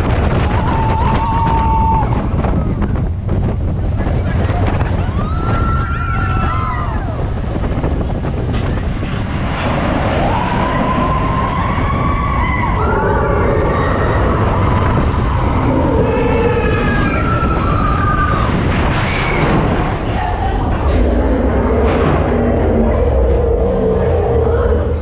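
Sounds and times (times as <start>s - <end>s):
roller coaster train rumble: 0.0s - 25.0s
wind on microphone: 0.0s - 25.0s
riders screaming: 0.5s - 2.8s, 5.0s - 7.2s, 10.1s - 20.1s.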